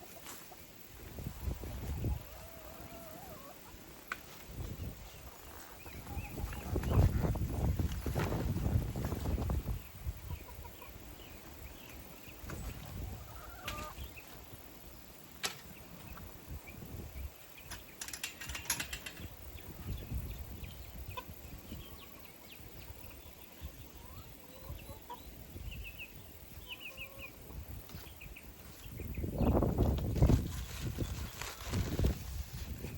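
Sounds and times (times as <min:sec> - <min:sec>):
chickens clucking: 0:00.0 - 0:14.4, 0:20.9 - 0:22.2, 0:22.8 - 0:28.7
low wind rumble: 0:04.5 - 0:10.7.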